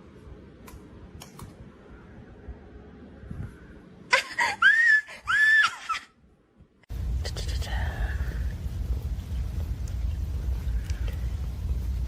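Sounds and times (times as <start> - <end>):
high-pitched screaming cries: 4.4 - 6.1.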